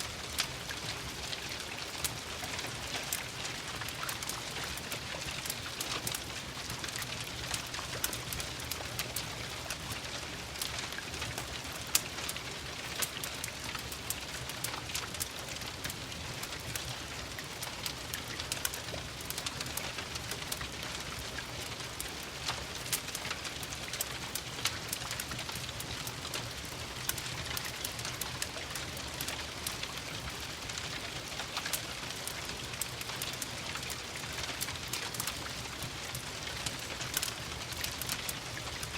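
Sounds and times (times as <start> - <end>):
rain pattering: 0.0 - 38.9
wood fire crackling: 0.0 - 38.9.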